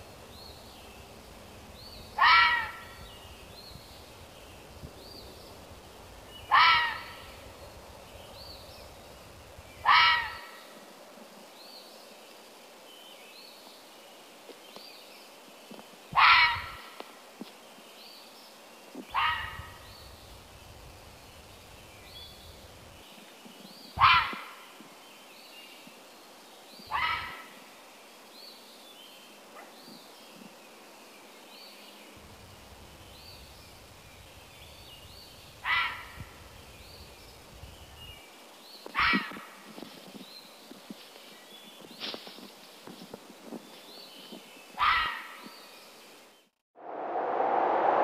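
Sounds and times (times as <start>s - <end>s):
loud rising bird call: 2.2s - 3.1s, 6.5s - 7.4s
small birds chirping: 11.4s - 46.6s.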